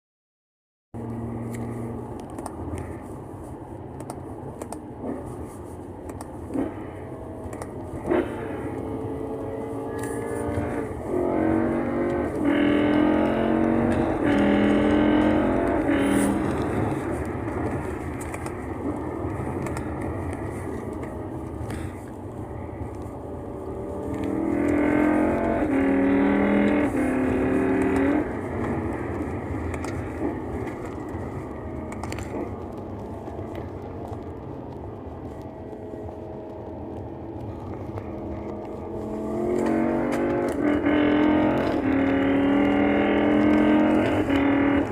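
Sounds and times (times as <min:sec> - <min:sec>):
car engine accelerating hard: 0:01.0 - 0:44.9.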